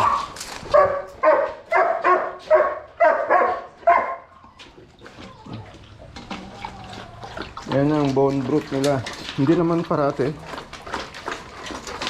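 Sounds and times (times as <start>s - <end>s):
dog barking: 0.0s - 4.3s.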